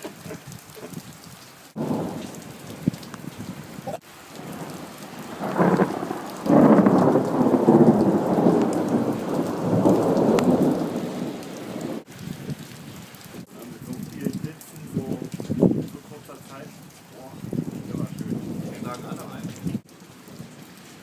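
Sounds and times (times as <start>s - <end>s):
steady rain: 0.0s - 21.0s
thunder rumbling: 1.8s - 12.6s, 17.3s - 20.6s.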